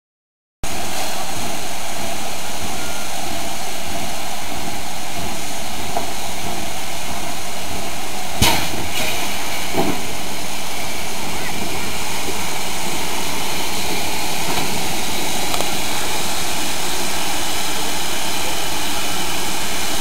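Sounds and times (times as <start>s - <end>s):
steam locomotive hiss: 0.7s - 20.0s.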